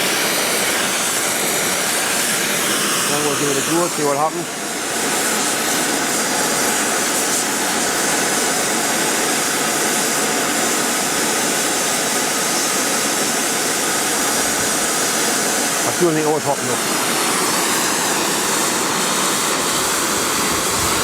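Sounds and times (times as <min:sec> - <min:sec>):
gas torch burner hissing: 0:00.0 - 0:21.0.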